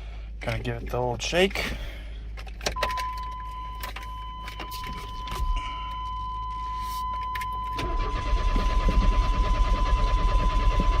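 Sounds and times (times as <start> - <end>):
keys rattling in ignition: 0.4 - 6.0
low pulsing rumble: 3.4 - 11.0.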